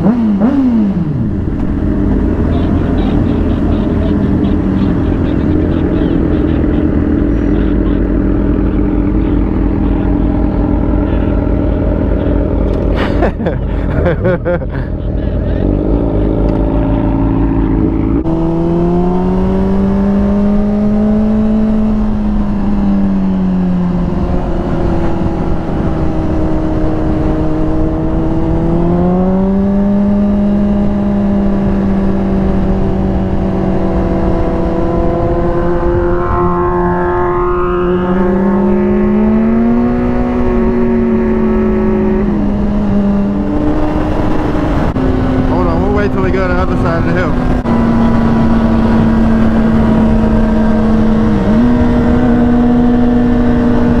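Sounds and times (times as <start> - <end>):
motorcycle engine revving: 0.0 - 54.0
steady rushing noise: 41.8 - 54.0.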